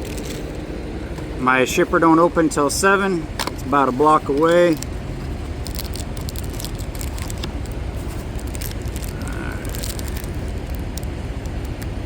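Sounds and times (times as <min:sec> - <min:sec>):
card packaging crackling: 0:00.0 - 0:00.6, 0:03.4 - 0:12.0
steady low rumble: 0:00.0 - 0:12.0.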